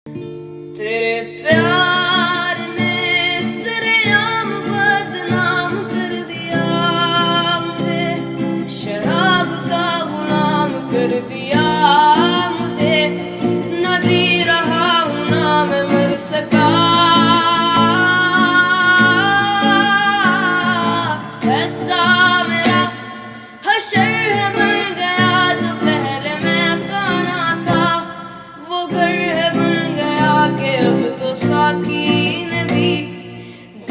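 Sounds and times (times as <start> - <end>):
plucked guitar: 0.1 - 33.9
person singing: 0.8 - 33.9.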